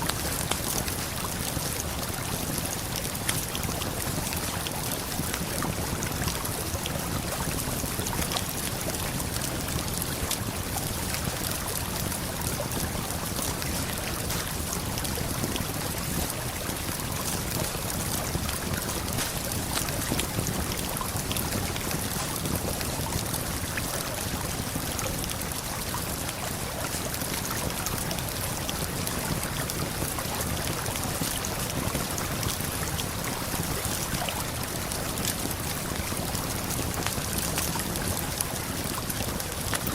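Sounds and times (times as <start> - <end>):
campfire crackling: 0.1 - 39.9
river and waterfall rushing: 19.0 - 20.7.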